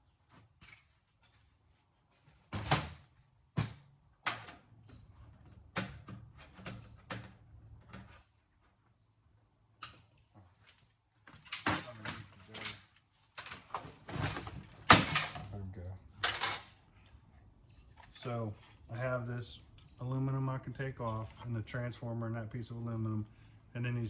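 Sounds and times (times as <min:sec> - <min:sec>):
metal parts and tools clattering: 0:16.2 - 0:16.8.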